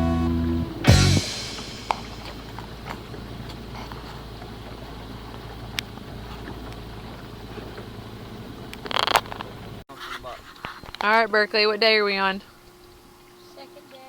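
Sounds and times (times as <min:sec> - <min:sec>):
boat motor humming: 0:00.0 - 0:09.8.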